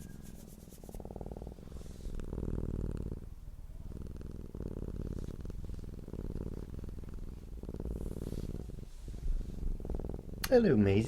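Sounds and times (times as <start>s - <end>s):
cat purring: 0.0s - 11.0s
cat breathing: 7.7s - 10.2s.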